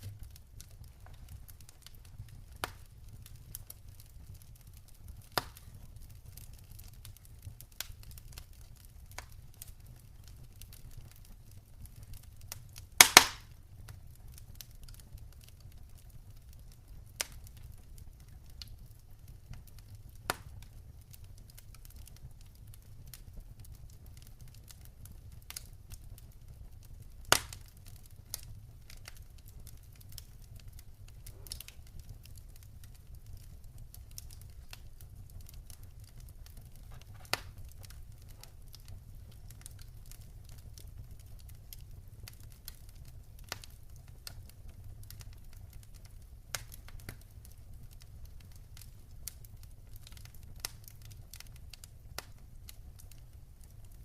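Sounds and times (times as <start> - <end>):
steady low rumble: 0.0 - 2.7
wood fire crackling: 0.0 - 54.0.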